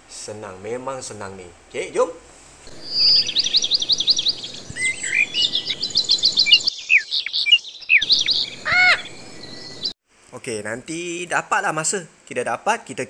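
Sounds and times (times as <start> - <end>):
harsh bird call: 2.7 - 9.9
birds chirping: 2.7 - 10.0
swooping bird calls: 2.7 - 10.0.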